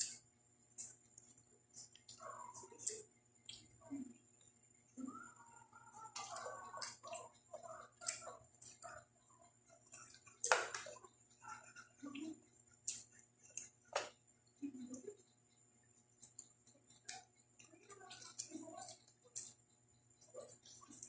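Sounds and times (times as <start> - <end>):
person chewing with mouth clicks: 2.8 - 3.8.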